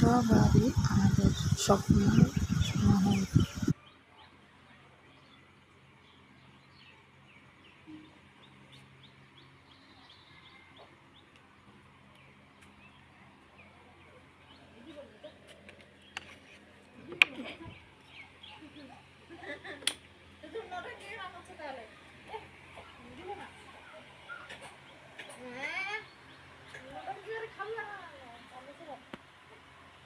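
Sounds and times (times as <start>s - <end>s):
voices: 0.0s - 6.9s, 9.7s - 30.0s
small birds chirping: 0.0s - 19.4s, 21.8s - 29.8s.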